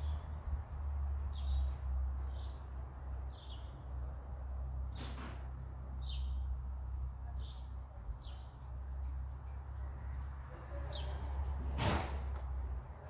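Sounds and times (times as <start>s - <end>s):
small bird chirping: 1.1s - 4.4s.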